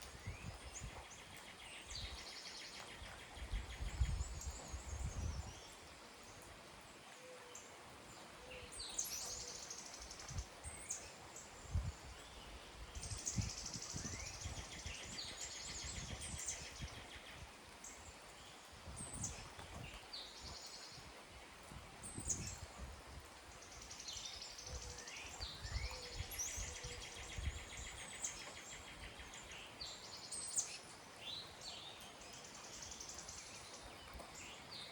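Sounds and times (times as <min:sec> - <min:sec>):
songbirds singing and calling: 0:00.0 - 0:34.9.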